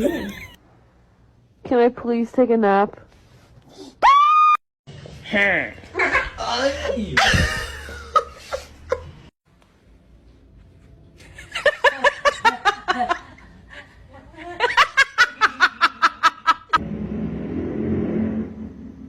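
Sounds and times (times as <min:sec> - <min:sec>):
person laughing: 0:00.0 - 0:00.6, 0:06.0 - 0:09.2
low hum: 0:16.8 - 0:19.0.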